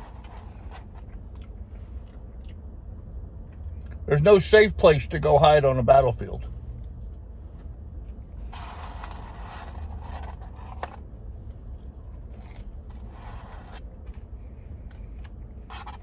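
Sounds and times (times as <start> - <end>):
food crunching and rustling: 0.0 - 2.6, 7.6 - 16.0.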